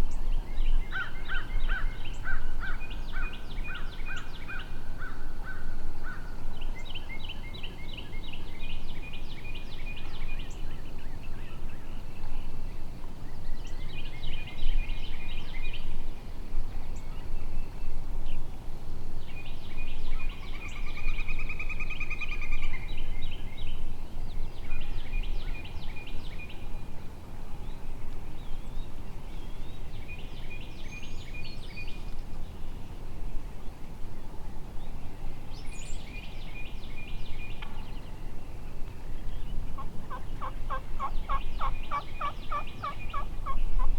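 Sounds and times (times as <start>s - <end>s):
outdoor background noise: 0.0s - 43.9s
turkey gobbling: 39.8s - 43.6s.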